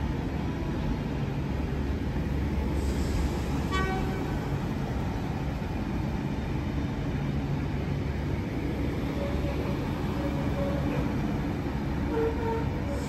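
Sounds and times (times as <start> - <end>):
train wheels rumbling: 0.0 - 13.0
high-pitched wheel squeal: 9.1 - 11.3, 12.0 - 13.0.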